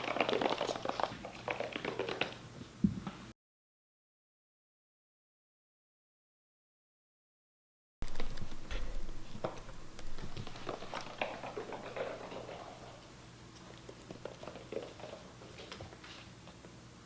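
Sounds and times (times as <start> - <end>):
kittens' paws pattering: 8.0 - 16.6.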